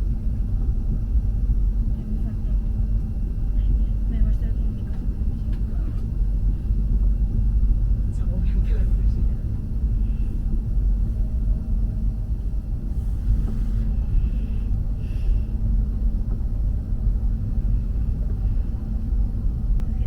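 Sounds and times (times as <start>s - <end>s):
faint steady hum: 0.0s - 20.0s
train running low rumble: 0.0s - 20.0s.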